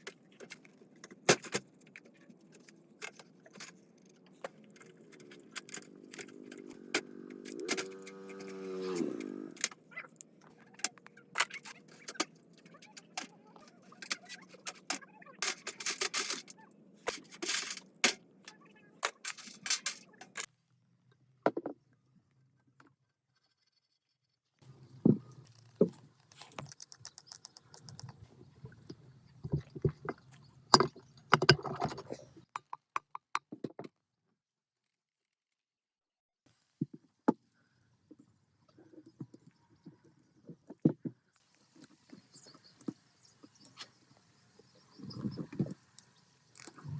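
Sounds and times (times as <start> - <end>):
metal tools clinking and scraping: 10.8 - 20.5, 25.4 - 32.5.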